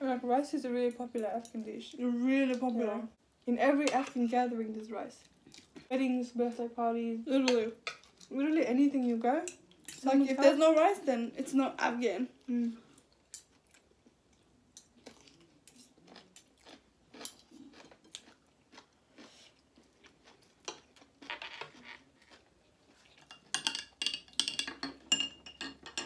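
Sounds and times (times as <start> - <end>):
chewing and crunching food: 5.2 - 5.9, 12.8 - 23.5.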